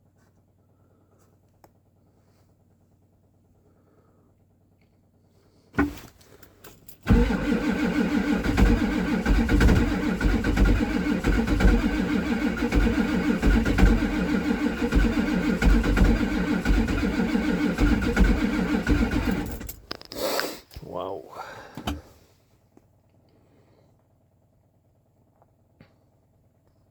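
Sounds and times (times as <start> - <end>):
starter cranking diesel engine: 5.8 - 22.3.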